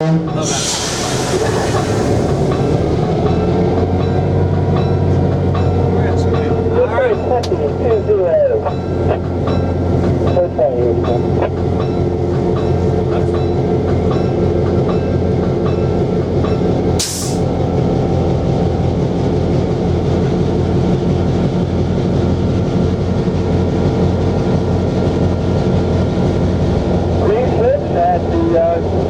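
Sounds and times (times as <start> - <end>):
diesel locomotive engine running: 0.0 - 29.0
brief hiss: 17.0 - 17.4.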